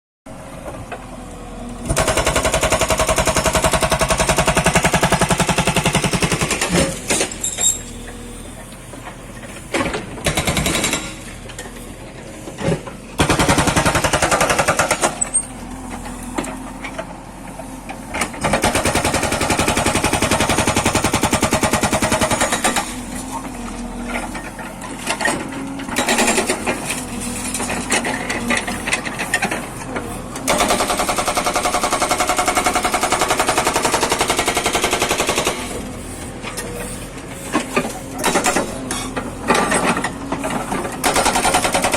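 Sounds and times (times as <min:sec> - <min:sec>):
hydraulic breaker hammering: 0:37.6 - 0:41.9.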